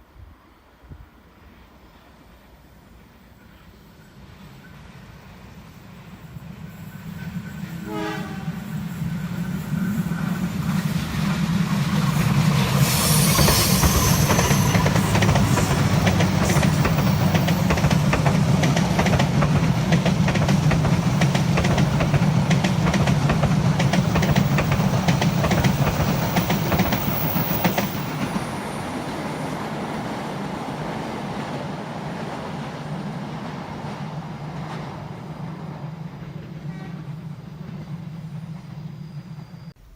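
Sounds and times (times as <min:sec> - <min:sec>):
train horn: 0:07.7 - 0:08.8
train wheels clattering on rails: 0:09.0 - 0:30.1.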